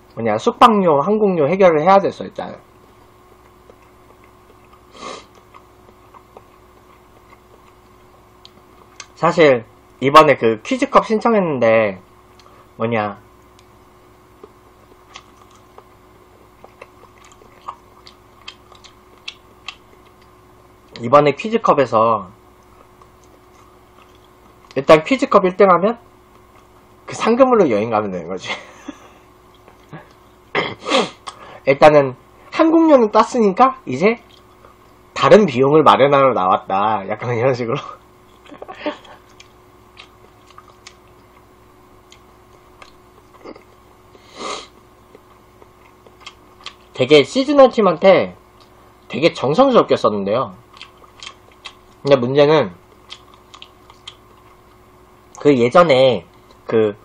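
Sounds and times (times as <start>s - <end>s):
person chewing quietly: 3.3s - 9.2s, 12.3s - 12.7s, 14.4s - 21.0s, 22.5s - 24.8s, 26.2s - 26.9s, 29.4s - 30.4s, 34.2s - 35.0s, 38.0s - 47.0s, 50.6s - 52.1s, 52.8s - 55.4s, 56.3s - 56.7s
mouth clicks and smacks: 3.4s - 9.2s, 14.4s - 15.9s, 16.5s - 20.3s, 38.3s - 43.8s, 50.7s - 52.0s, 52.9s - 55.4s.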